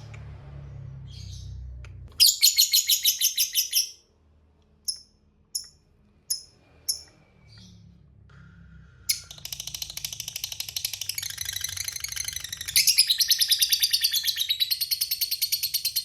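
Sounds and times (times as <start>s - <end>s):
sharp bird chirps: 2.2s - 4.0s, 4.9s - 7.8s, 9.1s - 16.0s.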